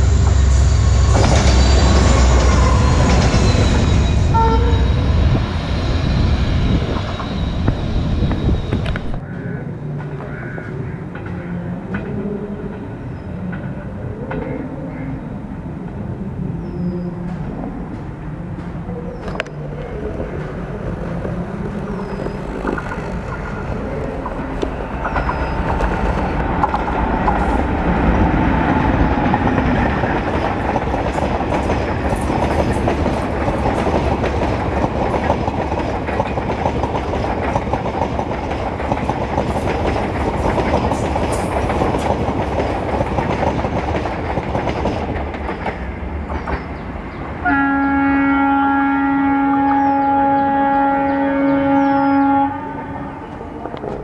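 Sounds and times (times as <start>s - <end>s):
train wheels rumbling and clattering: 0.0s - 9.3s, 17.2s - 47.4s
train horn long note: 4.3s - 5.1s, 47.4s - 53.5s.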